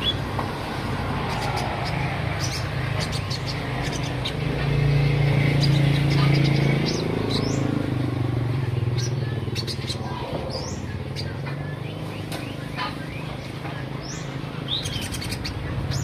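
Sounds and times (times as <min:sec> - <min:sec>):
vehicle engine humming: 0:00.0 - 0:16.0
sunbird high chirps: 0:05.4 - 0:16.0.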